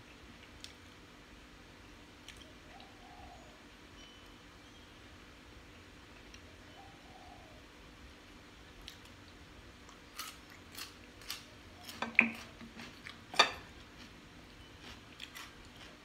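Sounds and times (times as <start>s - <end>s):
chewing with mouth smacks: 8.8s - 14.2s, 14.8s - 16.0s.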